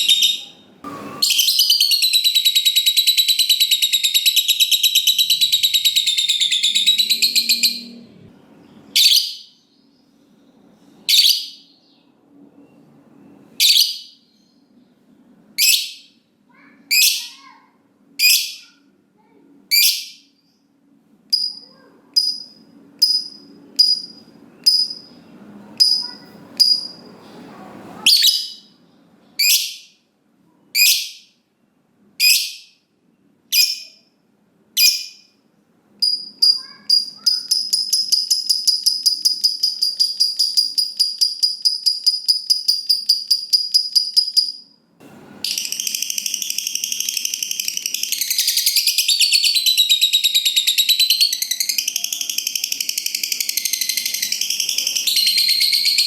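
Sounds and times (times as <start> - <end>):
high-pitched bird chattering: 0.0 - 8.1, 8.7 - 9.6, 11.1 - 11.7, 13.6 - 14.2, 15.6 - 17.6, 18.2 - 18.8, 19.7 - 20.4, 21.3 - 25.2, 25.8 - 27.1, 28.0 - 28.8, 29.4 - 30.0, 30.8 - 31.3, 32.2 - 32.8, 33.5 - 34.0, 34.8 - 35.4, 36.0 - 44.7, 45.5 - 56.0
lovebird chirps and trills: 0.0 - 10.1, 12.6 - 14.6, 21.3 - 25.2, 25.8 - 27.1, 28.0 - 28.8, 33.5 - 34.1, 34.8 - 35.4, 36.0 - 44.7, 45.5 - 56.0.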